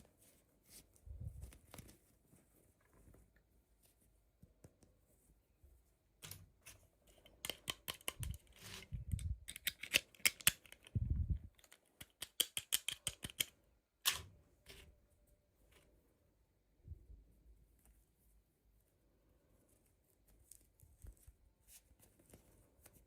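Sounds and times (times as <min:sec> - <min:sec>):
plastic packaging clicks and taps: 0:11.6 - 0:13.5.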